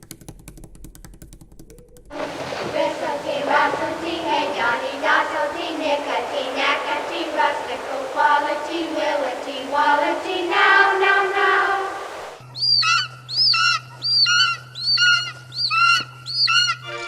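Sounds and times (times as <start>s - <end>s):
children singing in chorus: 2.1s - 12.4s
bird-like call: 2.2s - 16.8s.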